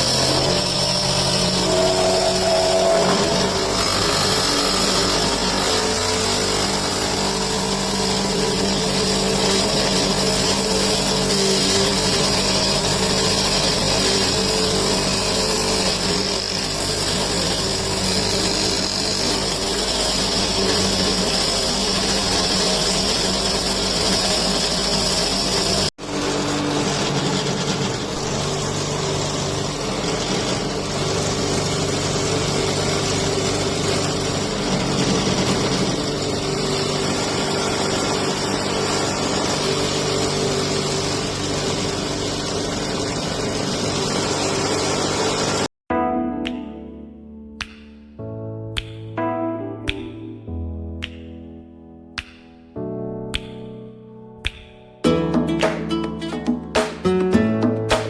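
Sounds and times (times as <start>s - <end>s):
welding machine motor hum and whine: 0.0s - 45.7s.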